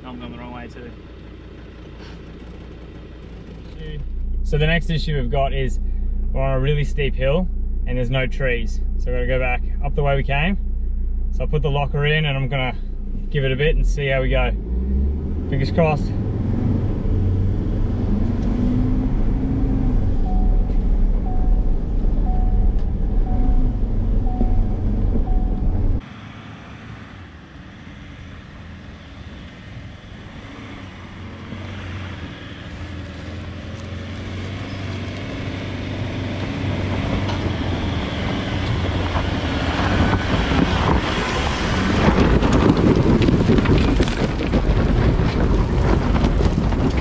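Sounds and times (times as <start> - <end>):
distant engine: 0.0 - 47.0
engine working hard: 0.0 - 47.0
short beeps: 20.2 - 26.0
wind noise: 36.5 - 47.0.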